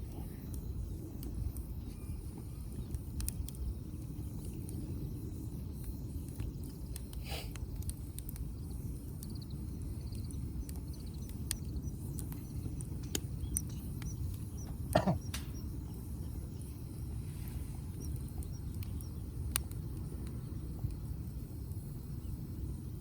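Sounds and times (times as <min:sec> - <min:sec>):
wood fire crackling: 0:00.0 - 0:23.0
sharp fire pops: 0:10.1 - 0:16.0.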